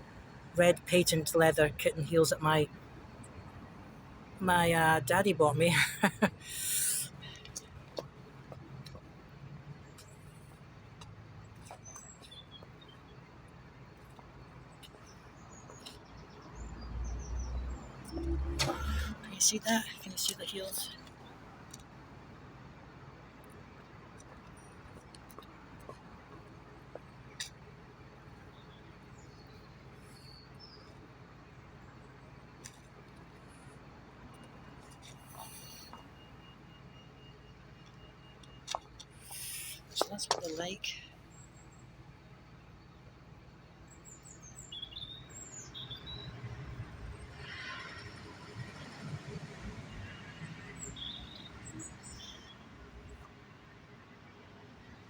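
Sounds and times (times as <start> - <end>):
low rumble of road traffic: 0.0 - 55.0
small birds chirping: 9.8 - 18.1, 26.9 - 33.3, 42.7 - 46.4, 50.7 - 53.2.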